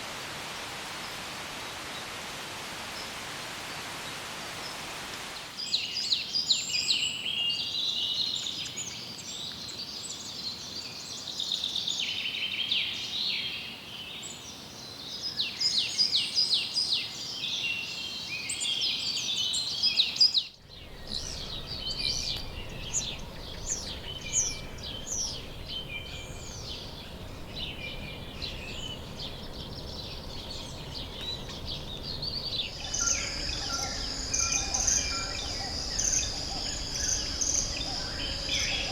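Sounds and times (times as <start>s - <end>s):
background noise: 0.0s - 38.9s
chorus of birds singing: 5.4s - 38.9s.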